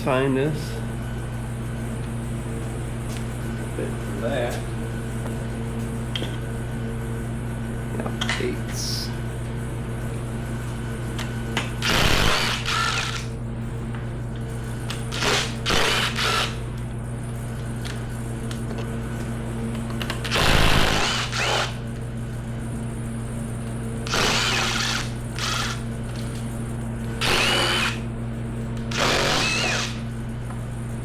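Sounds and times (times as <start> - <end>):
power drill running: 11.7 - 13.4, 14.8 - 16.7, 20.0 - 21.8, 24.0 - 26.1, 27.0 - 28.1, 28.8 - 30.1.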